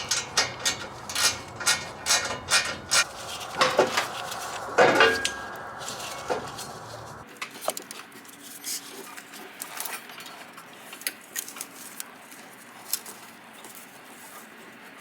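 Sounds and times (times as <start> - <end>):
clattering scrapes: 0.0 - 7.2.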